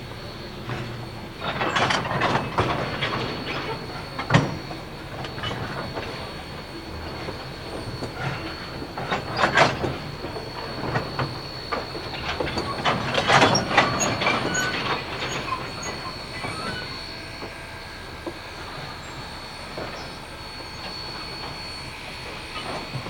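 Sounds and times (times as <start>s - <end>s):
train cars rolling past: 0.0s - 23.0s
wheels squealing: 0.0s - 23.0s
metallic clanks over rails: 0.2s - 23.0s.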